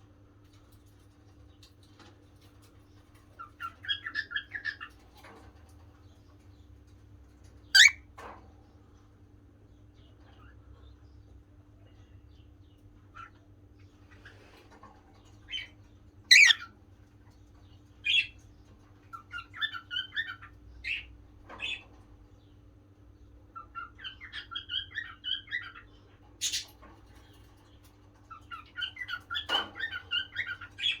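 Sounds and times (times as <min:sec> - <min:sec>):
cockatiel chattering: 0:07.8 - 0:08.0, 0:16.3 - 0:16.6
cockatiel sharp chirps: 0:07.8 - 0:08.0, 0:16.3 - 0:16.6.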